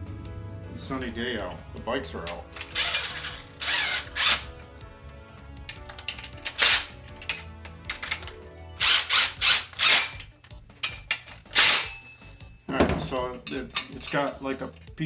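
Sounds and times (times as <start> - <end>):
ratchet wrench cranking: 2.3 - 4.7, 5.7 - 12.4, 13.3 - 15.0.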